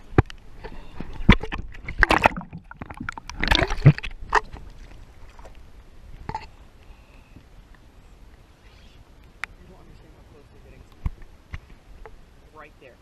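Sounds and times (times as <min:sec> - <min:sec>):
water slapping against hull: 0:01.0 - 0:05.6.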